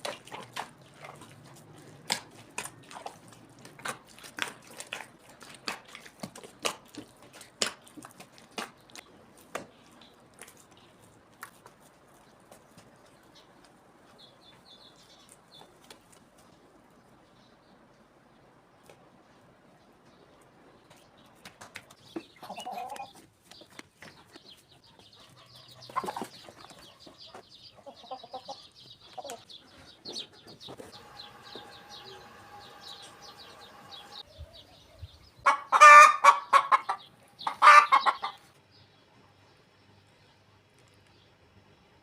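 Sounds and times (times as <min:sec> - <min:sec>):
chickens clucking: 0:21.6 - 0:38.6
loud chicken calls: 0:35.4 - 0:38.4.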